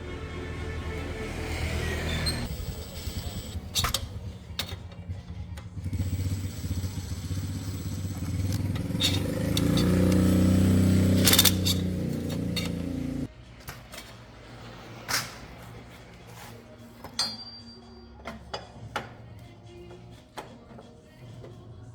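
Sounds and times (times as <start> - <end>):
motorcycle engine revving: 0.0 - 13.3.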